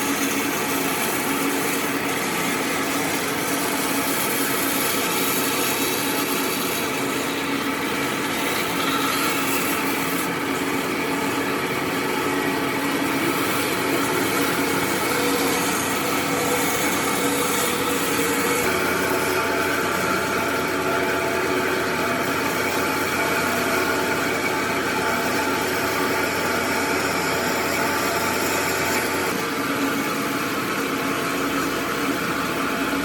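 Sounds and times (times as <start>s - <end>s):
power tool cutting wood: 0.0s - 33.0s.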